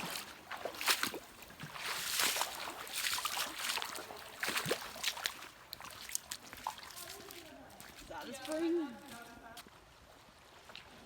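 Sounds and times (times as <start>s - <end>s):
shallow water splashing: 0.0s - 8.7s.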